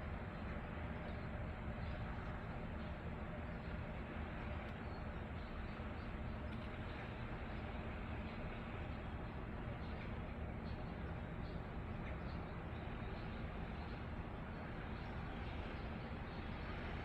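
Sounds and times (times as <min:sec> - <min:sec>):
low outdoor ambient rush: 0:00.0 - 0:17.0.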